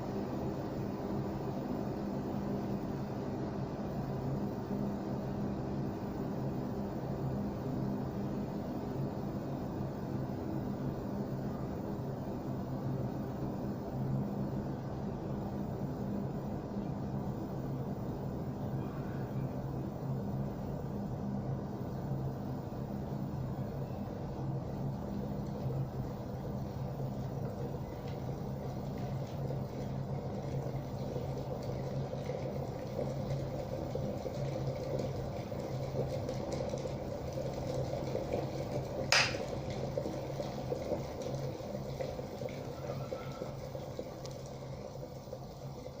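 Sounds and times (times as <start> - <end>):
kettle boiling: 0.0 - 46.0
kettle switch click: 39.1 - 39.5.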